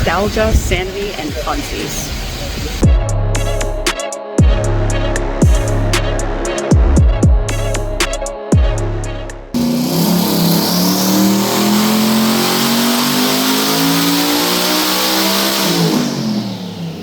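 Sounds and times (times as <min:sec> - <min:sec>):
car engine revving: 0:04.5 - 0:17.0.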